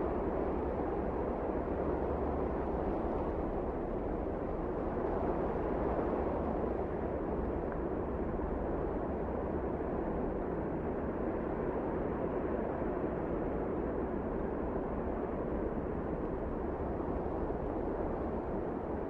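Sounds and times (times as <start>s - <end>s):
wind blowing steadily: 0.0s - 19.0s.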